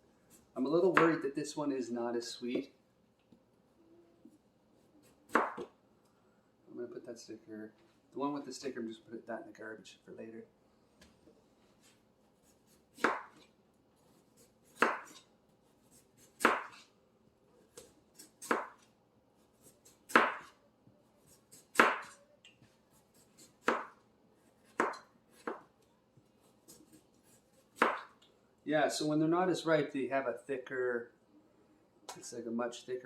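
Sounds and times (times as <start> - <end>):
knife chopping melon: 0.9 - 1.2, 5.0 - 5.7, 11.8 - 13.5, 14.1 - 16.9, 17.7 - 20.6, 21.2 - 22.2, 22.9 - 25.7, 26.4 - 28.2.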